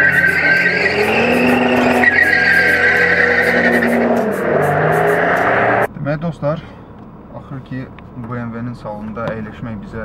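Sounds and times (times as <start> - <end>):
diesel car engine accelerating: 0.0 - 5.9.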